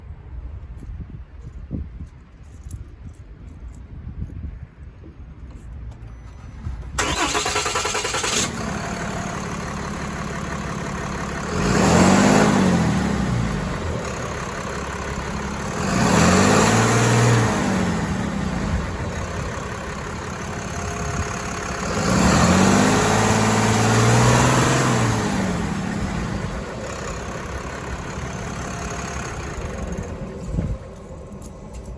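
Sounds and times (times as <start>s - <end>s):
pickup engine cranking: 5.9s - 31.9s
engine idling: 6.2s - 31.9s
engine revving: 6.6s - 31.6s.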